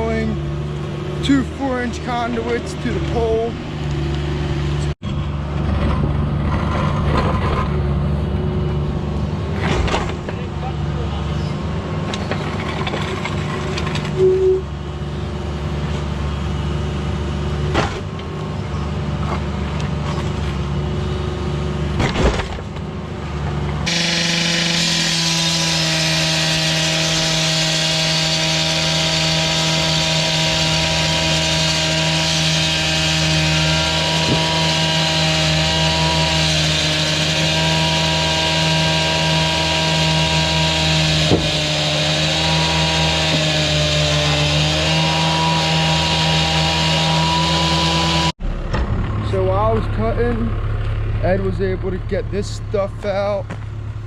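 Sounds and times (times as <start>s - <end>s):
power saw cutting asphalt: 0.0s - 53.6s
low engine running: 26.1s - 54.0s.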